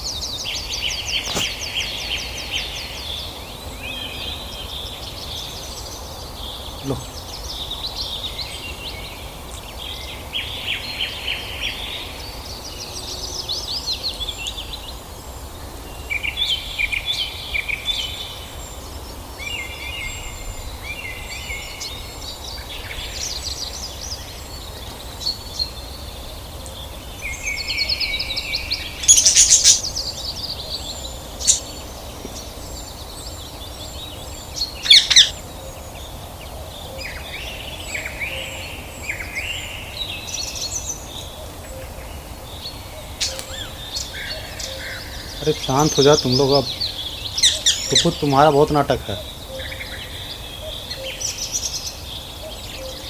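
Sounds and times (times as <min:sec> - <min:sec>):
budgerigars chirping and chattering: 0:00.6 - 0:02.2, 0:27.2 - 0:36.1, 0:42.6 - 0:53.0.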